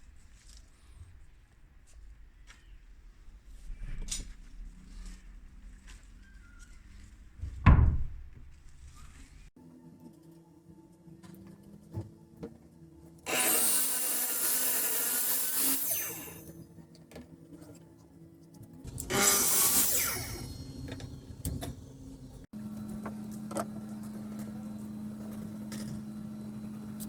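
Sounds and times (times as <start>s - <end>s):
power tool cutting wood: 13.3s - 16.5s, 18.9s - 21.4s.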